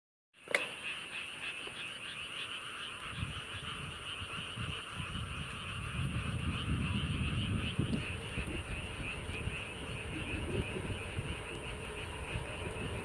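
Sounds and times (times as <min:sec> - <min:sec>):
frogs calling in trills: 0:00.4 - 0:13.0
low rumble: 0:03.2 - 0:13.0.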